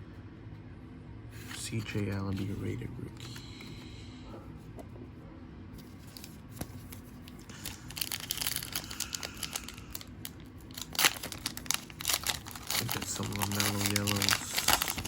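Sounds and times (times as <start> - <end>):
wrapper crinkling: 7.2 - 15.0
wrapper ripping: 7.5 - 15.0.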